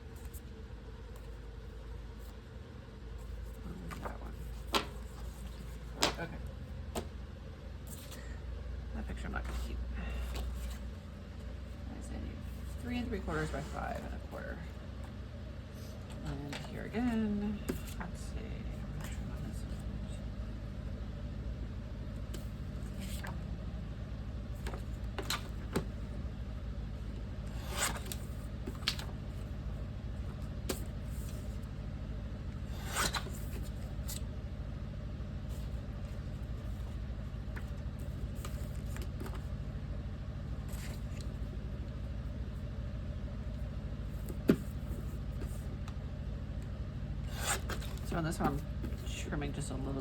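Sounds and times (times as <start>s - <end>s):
steady low hum: 0.0s - 50.0s
paper rustling and sliding: 3.2s - 6.2s, 22.3s - 23.4s, 27.5s - 29.5s, 32.7s - 34.2s, 35.5s - 39.5s.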